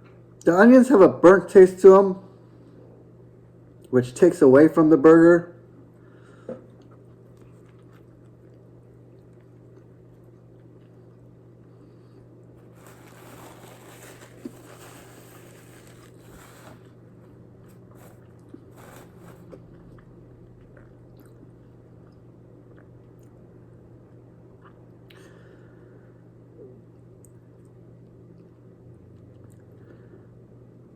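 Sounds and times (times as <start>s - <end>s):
person chewing: 6.7s - 11.3s, 17.6s - 23.3s
rustling noise: 12.6s - 19.6s.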